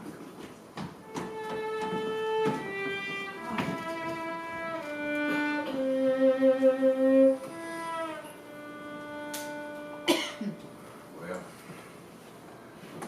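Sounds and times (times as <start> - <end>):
slow fiddle melody: 1.0 - 11.2
string backing: 1.0 - 11.5.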